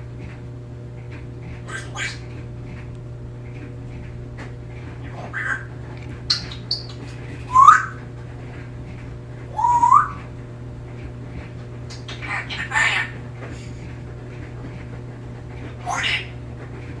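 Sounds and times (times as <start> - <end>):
parrot whistling and chirping: 1.7 - 2.3, 5.2 - 8.0, 9.5 - 10.3, 11.9 - 13.2, 15.8 - 16.3.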